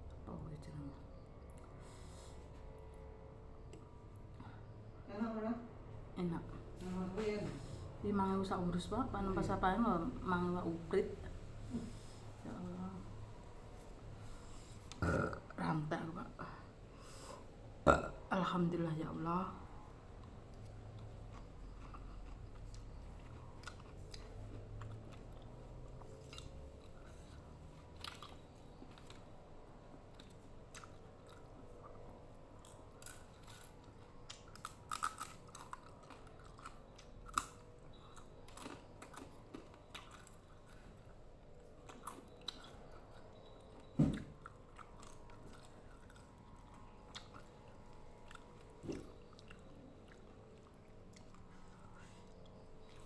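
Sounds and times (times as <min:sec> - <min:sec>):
chewing and crunching: 0:19.5 - 0:53.0.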